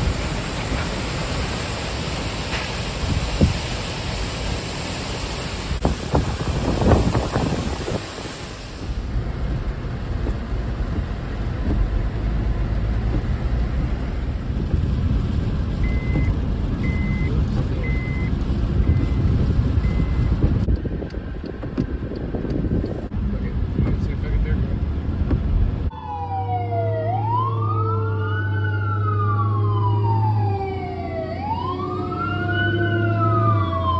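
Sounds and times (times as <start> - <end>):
wind buffeting microphone: 0.0 - 25.9
short electronic beeps: 16.9 - 18.3.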